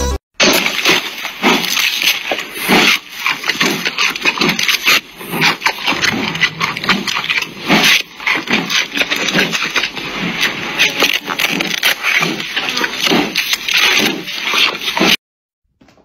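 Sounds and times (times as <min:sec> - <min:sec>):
panda chewing bamboo: 0:00.4 - 0:15.2.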